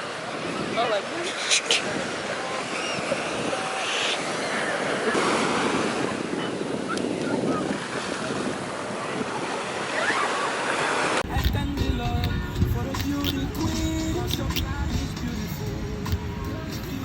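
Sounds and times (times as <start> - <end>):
ocean surf breaking: 0.0 - 12.0
wind buffeting microphone: 0.0 - 17.0.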